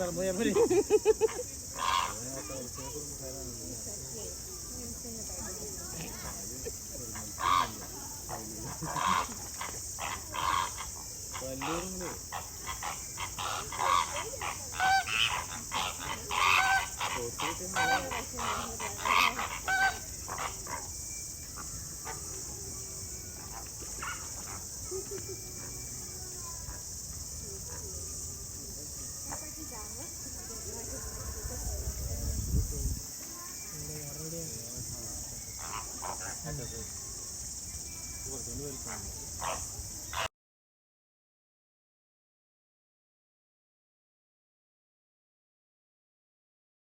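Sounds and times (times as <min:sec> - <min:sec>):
flamingos honking: 0:00.0 - 0:03.0, 0:03.9 - 0:32.0, 0:35.1 - 0:40.3.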